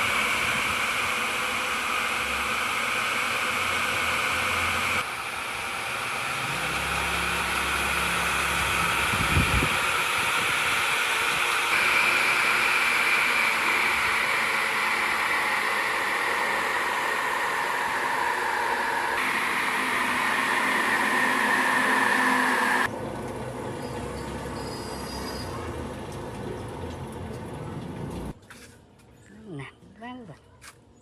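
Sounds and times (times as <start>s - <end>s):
electric motor whining: 0.0s - 22.9s.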